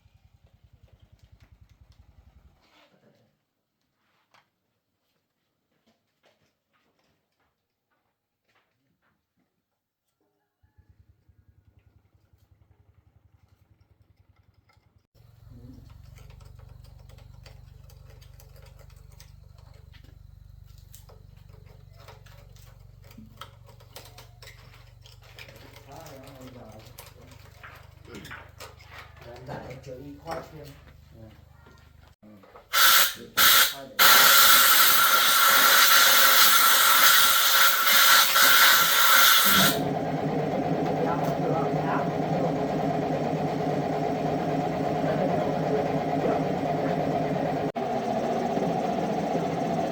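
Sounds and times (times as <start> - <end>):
small engine running: 11.8 - 49.9
light ticking clatter: 13.3 - 31.0
compressed air hissing from nozzle: 32.8 - 39.8.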